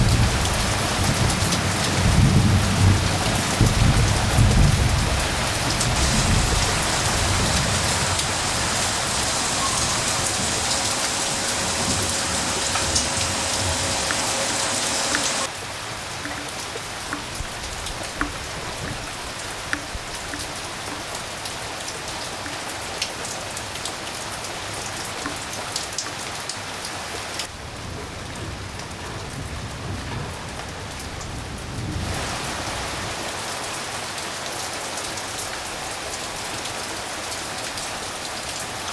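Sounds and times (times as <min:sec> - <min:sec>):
low thunder rumble: 0:00.0 - 0:15.5
raindrops ticking: 0:00.0 - 0:24.0
rain falling: 0:00.0 - 0:38.9.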